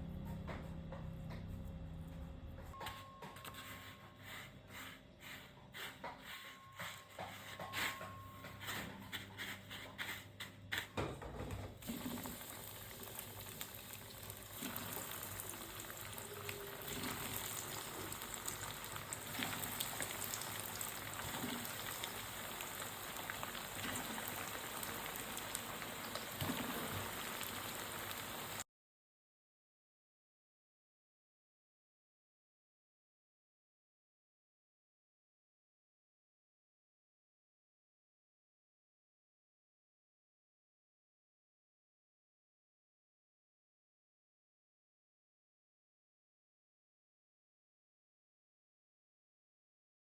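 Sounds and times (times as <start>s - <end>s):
food sizzling in hot oil: 11.8s - 28.6s.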